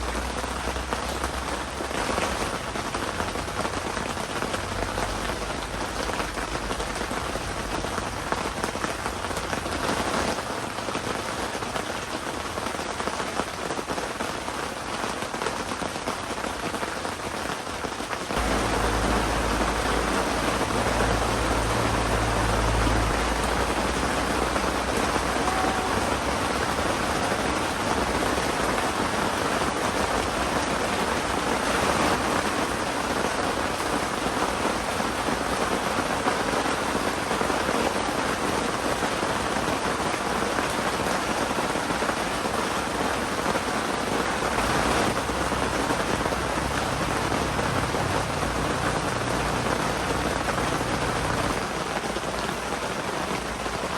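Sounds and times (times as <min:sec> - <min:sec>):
heavy rain falling: 0:00.0 - 0:53.9
low rumble: 0:18.4 - 0:27.5.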